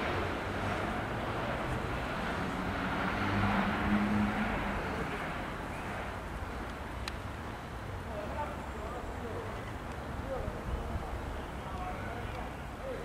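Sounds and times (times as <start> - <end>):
distant freight train rumbling: 0.0 - 9.5.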